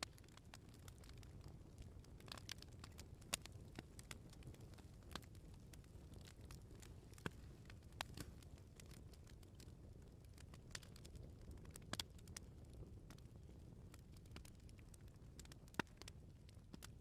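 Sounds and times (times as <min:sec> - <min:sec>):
wood fire crackling: 0:00.0 - 0:17.0
sharp pops and snaps: 0:07.1 - 0:07.4, 0:08.0 - 0:08.4.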